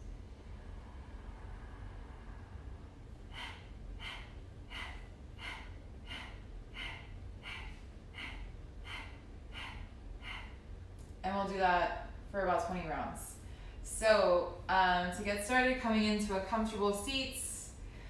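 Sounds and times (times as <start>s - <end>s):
woman's forceful nasal exhales: 3.3s - 10.6s.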